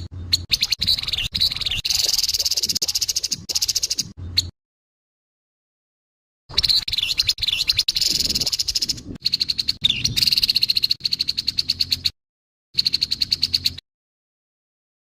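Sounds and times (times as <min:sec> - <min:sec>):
bird harsh chattering call: 0:00.0 - 0:04.2, 0:06.5 - 0:12.1, 0:12.8 - 0:13.8.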